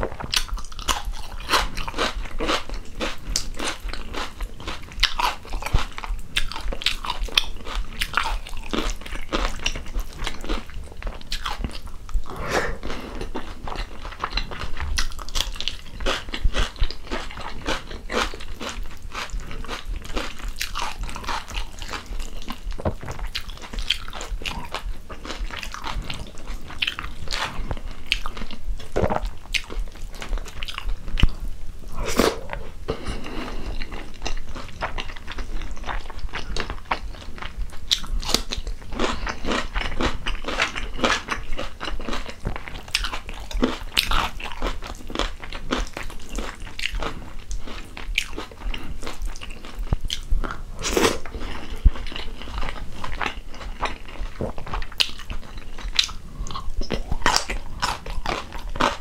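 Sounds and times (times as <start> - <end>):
wet mouth sounds: 0.0 - 4.0, 11.0 - 41.5
chewing and crunching food: 0.0 - 59.0.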